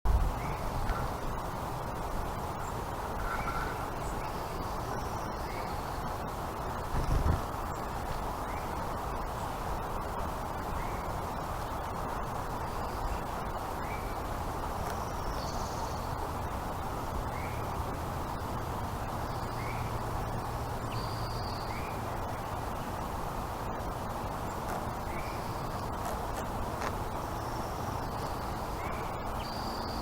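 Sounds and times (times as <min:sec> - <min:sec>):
outdoor background noise: 0:00.1 - 0:30.0.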